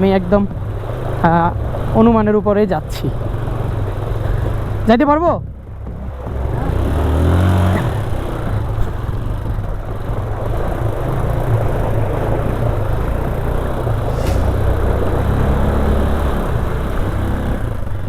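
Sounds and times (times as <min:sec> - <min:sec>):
motorcycle engine running: 0:00.0 - 0:18.0
rough rushing noise: 0:05.8 - 0:17.9.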